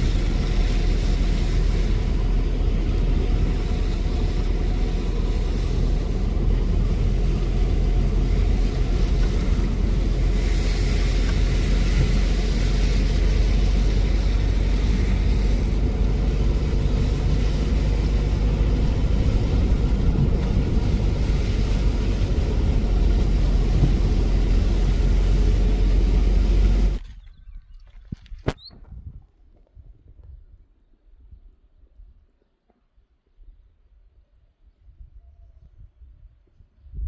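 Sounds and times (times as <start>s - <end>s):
car driving road and engine noise: 0.0s - 27.0s.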